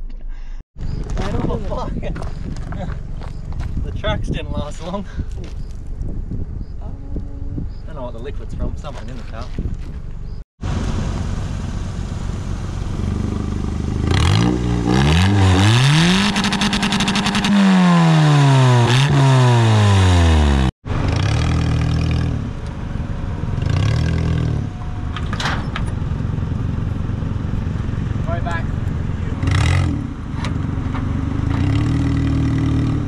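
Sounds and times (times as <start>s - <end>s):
car engine revving: 10.6s - 33.0s.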